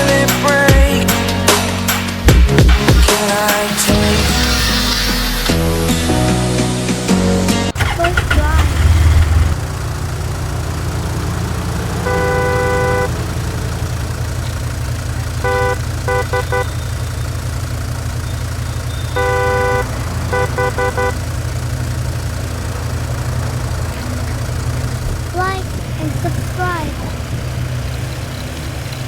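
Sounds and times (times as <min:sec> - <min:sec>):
low engine rumble: 0:00.0 - 0:29.0
car horn honking: 0:07.8 - 0:17.6, 0:18.2 - 0:28.4.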